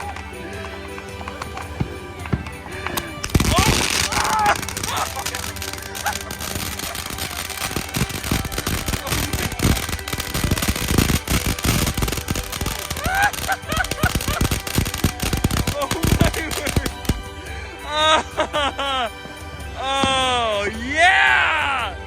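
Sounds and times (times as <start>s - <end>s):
fireworks popping and crackling: 0.0s - 17.6s
voices calling out: 0.0s - 22.0s.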